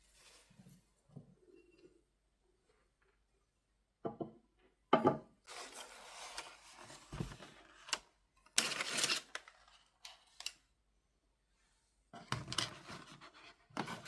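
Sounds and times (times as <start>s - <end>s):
rustling scraping noise: 0.0s - 1.0s, 5.5s - 7.6s.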